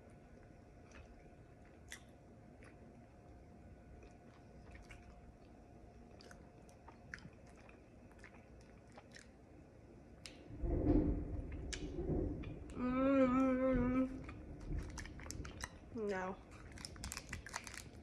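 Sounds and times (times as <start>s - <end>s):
low room hiss: 0.0s - 18.0s
faint chewing with mouth closed: 0.2s - 9.4s, 14.2s - 15.9s.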